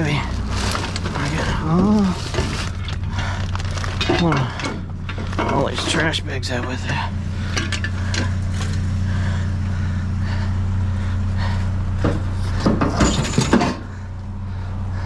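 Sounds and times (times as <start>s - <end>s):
junk clattering in dumpster: 0.0s - 8.9s, 11.4s - 14.1s
steady low hum: 0.0s - 15.0s.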